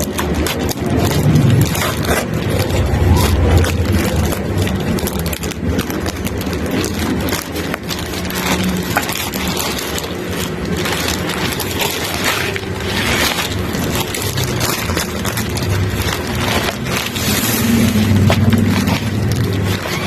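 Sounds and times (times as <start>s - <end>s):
packaging crinkling and scraping: 0.0s - 20.0s
low steady hum: 0.1s - 12.6s.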